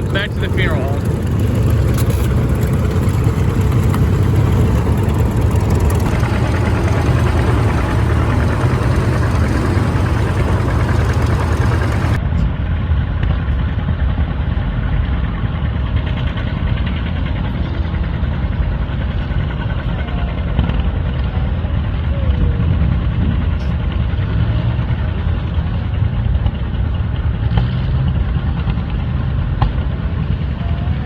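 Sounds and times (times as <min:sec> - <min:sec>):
vehicle engine running loudly: 0:00.0 - 0:31.0.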